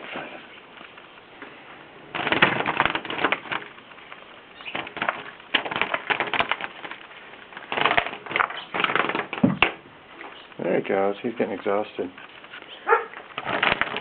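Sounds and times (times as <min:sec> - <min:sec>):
bird wings clattering: 0:02.1 - 0:10.6, 0:12.2 - 0:14.0.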